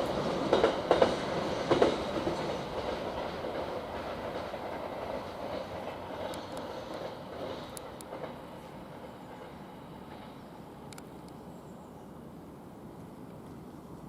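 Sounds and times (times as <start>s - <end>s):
wheels clacking on rail joints: 0.0s - 11.2s
freight train rolling: 0.0s - 14.0s.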